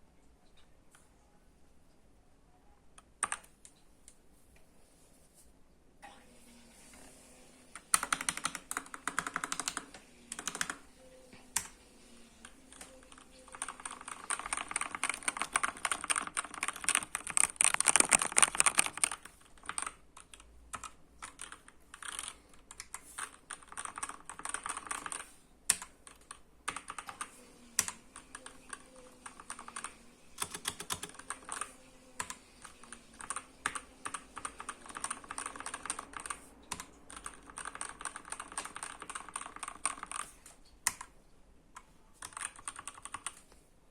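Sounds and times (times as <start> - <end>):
typing on computer keyboard: 3.1 - 4.2, 7.7 - 11.8, 12.4 - 41.2, 41.8 - 43.5.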